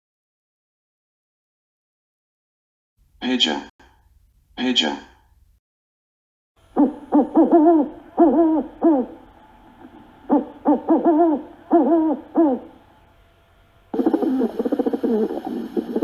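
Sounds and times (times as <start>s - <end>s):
pigeon cooing: 6.6s - 16.0s.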